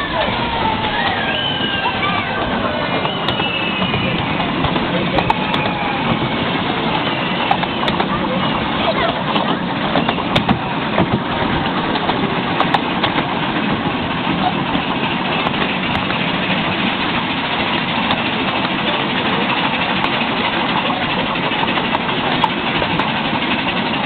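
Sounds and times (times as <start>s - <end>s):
track clicks: 0.0s - 17.0s
miniature train wheels rumbling: 0.0s - 24.0s.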